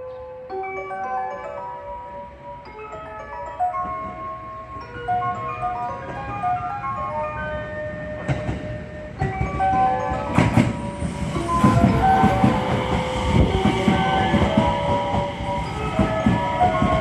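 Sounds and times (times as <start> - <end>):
train wheels clacking over rail joints: 8.0 - 17.0.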